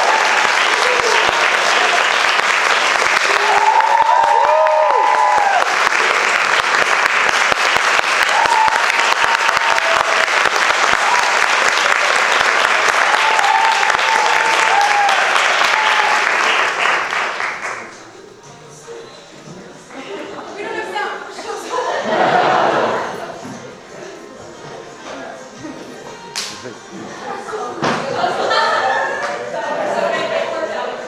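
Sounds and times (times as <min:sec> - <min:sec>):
audience applauding: 0:00.0 - 0:18.1.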